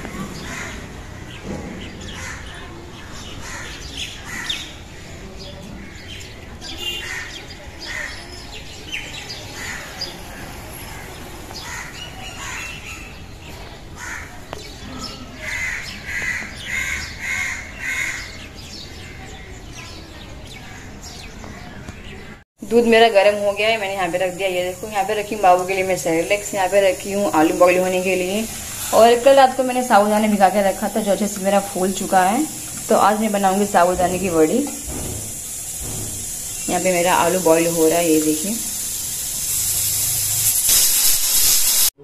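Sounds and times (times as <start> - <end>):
birds calling and chirping: 0.0 - 22.4, 23.2 - 39.8.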